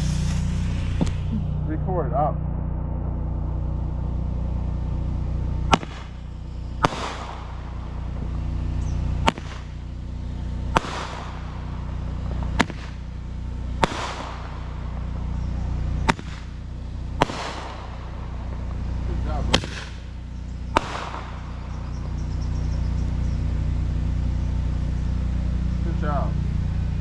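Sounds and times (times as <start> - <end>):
firework pops: 0.0 - 1.6, 5.6 - 10.0, 10.6 - 24.3
crackling hiss: 0.0 - 27.0.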